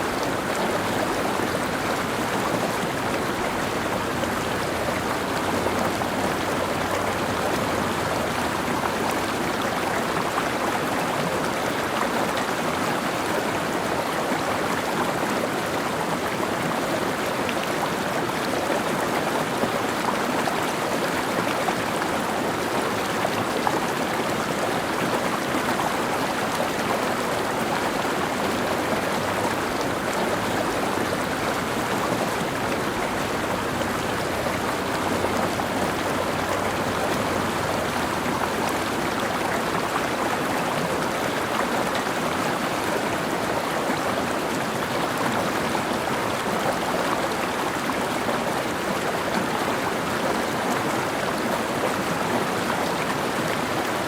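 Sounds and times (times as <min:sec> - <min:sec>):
stream water splashing over rocks: 0:00.0 - 0:54.0.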